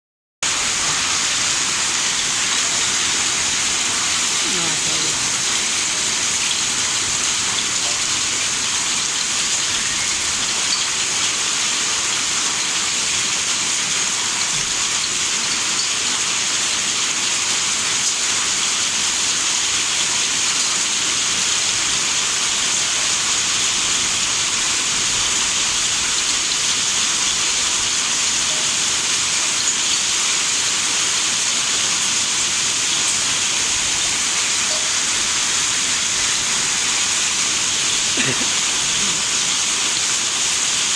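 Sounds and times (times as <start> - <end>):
heavy hail downpour: 0.4 - 40.9.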